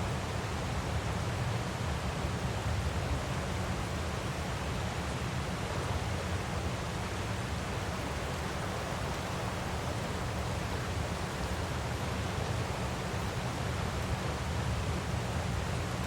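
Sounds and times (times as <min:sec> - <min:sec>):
waterfall rushing: 0:07.8 - 0:13.4.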